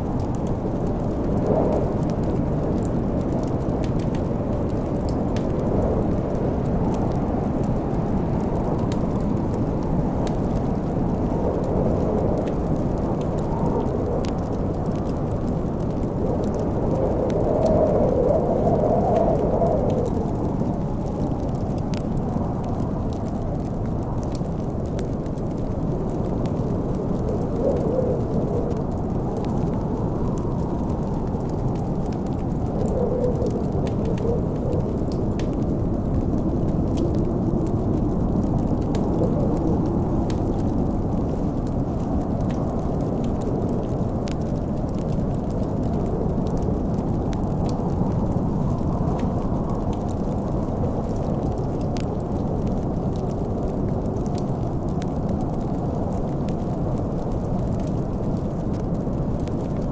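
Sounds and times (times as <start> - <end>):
snowstorm wind rumble: 0.0 - 59.9
wood fire crackling and popping: 0.0 - 59.9.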